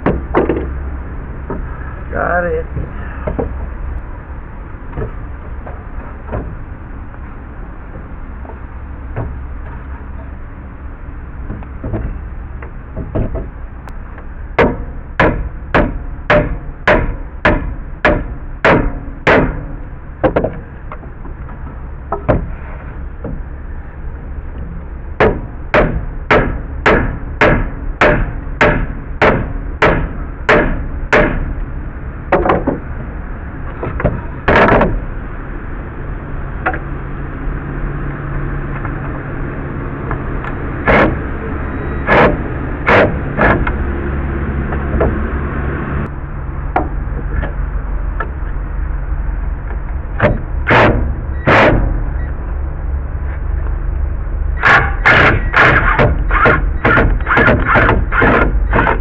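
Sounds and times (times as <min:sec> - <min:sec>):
hammer blows on wood: 0:14.6 - 0:20.6, 0:42.0 - 0:43.7, 0:54.6 - 0:59.0.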